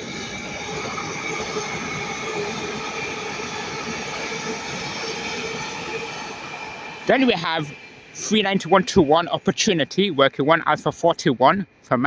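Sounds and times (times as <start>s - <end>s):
train wheels rumbling on rail: 0.0s - 11.9s.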